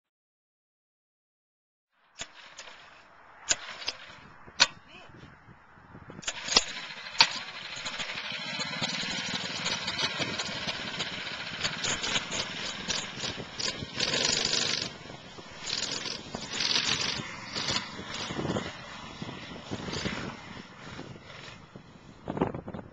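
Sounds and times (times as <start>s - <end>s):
sharp clicks: 6.2s - 18.4s
small engine running: 6.2s - 22.5s.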